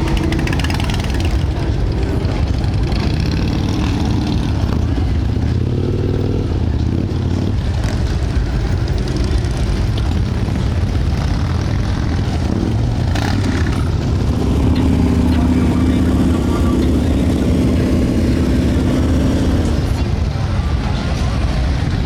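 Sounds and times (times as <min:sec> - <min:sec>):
motorcycle engines running: 0:00.0 - 0:22.0.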